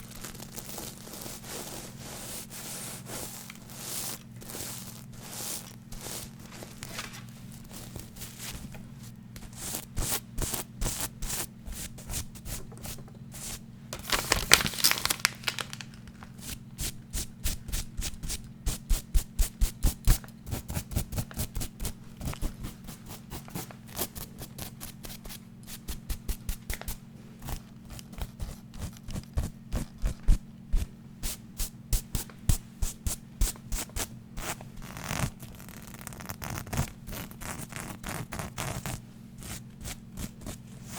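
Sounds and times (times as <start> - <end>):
scratching or brushing: 0.4 - 12.6, 34.4 - 40.9.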